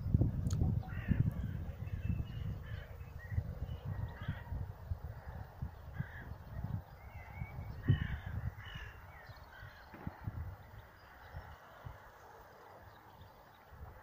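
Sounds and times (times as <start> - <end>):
birds short calls: 5.9 - 10.3.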